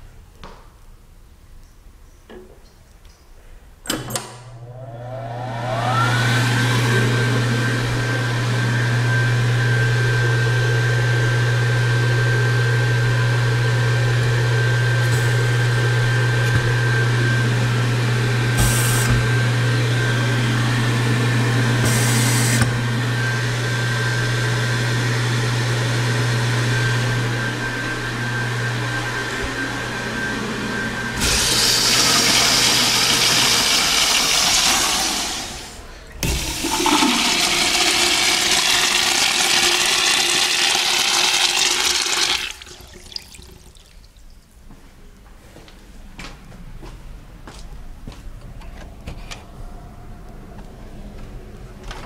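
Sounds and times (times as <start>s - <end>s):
electric hand dryer blowing: 4.6s - 43.4s.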